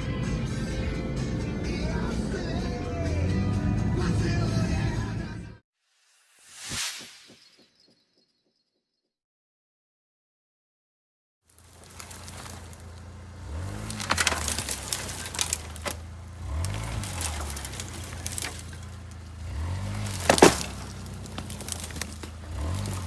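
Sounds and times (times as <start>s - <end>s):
car engine revving under load: 11.6s - 23.0s
sharp cracks and knocks: 11.6s - 23.0s.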